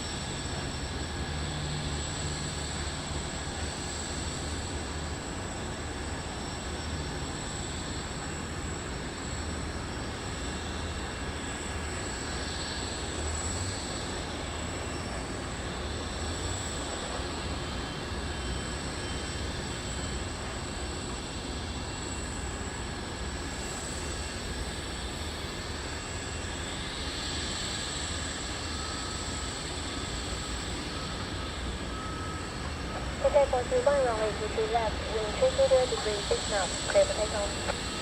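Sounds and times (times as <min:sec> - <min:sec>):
high steady whine: 0:30.9 - 0:38.0
jet engines rumbling: 0:31.2 - 0:38.0.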